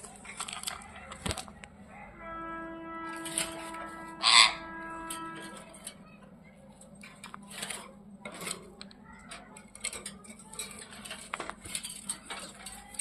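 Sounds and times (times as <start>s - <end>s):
parrots scuffling with clicks: 0.0s - 1.7s, 6.8s - 13.0s.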